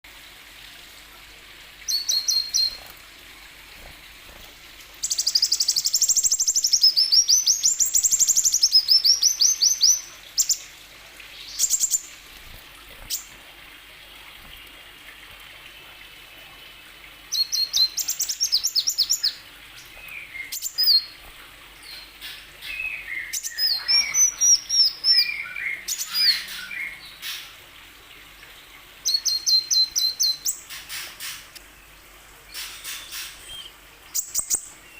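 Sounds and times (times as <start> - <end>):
bird trills and chirps: 1.8 - 2.9, 5.0 - 10.7, 11.4 - 13.4, 17.3 - 27.6, 29.0 - 31.6, 32.5 - 34.9.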